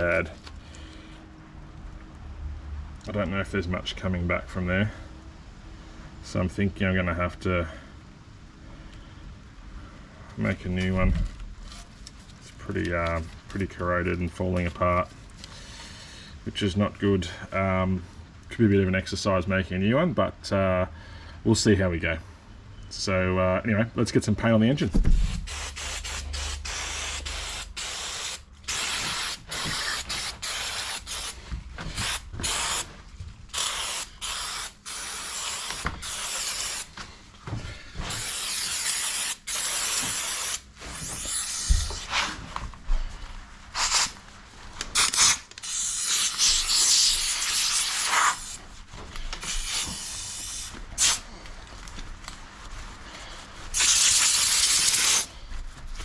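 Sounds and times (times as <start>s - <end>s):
spray can hissing: 25.2s - 32.9s, 33.5s - 36.9s, 38.1s - 42.1s, 43.8s - 44.2s, 44.9s - 48.6s, 49.4s - 51.2s, 53.7s - 55.3s.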